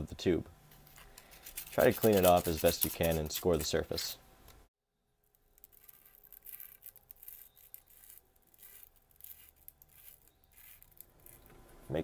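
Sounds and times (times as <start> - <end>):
sandpaper scraping metal tube: 1.3 - 4.1, 5.7 - 11.4.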